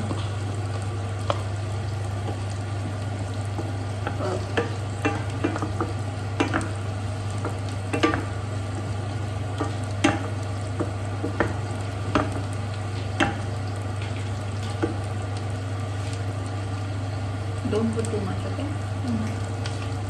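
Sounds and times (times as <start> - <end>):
light sizzle: 0.0 - 20.0
steady low hum: 0.0 - 20.0.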